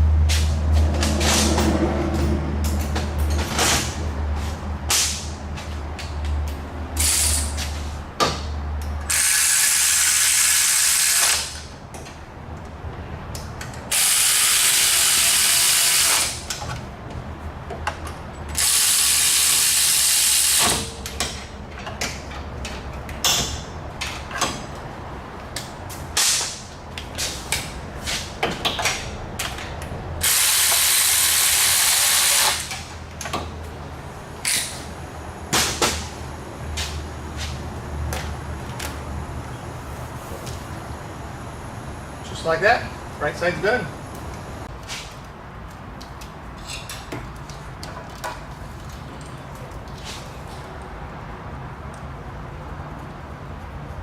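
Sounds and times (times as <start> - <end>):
air tool bursts: 7.0 - 7.6, 9.1 - 11.6, 13.9 - 16.4, 18.6 - 20.9, 30.2 - 32.7.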